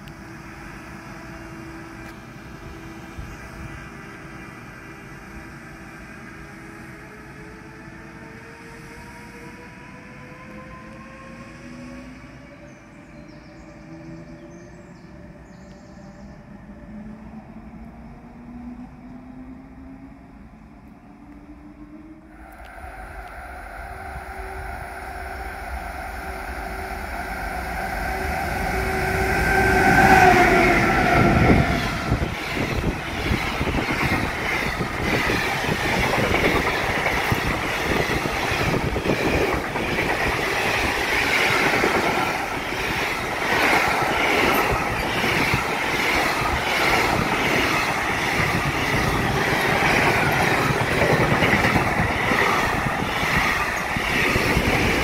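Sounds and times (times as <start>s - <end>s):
freight train passing: 0.0s - 55.0s
locomotive tone dropping in pitch: 21.2s - 55.0s.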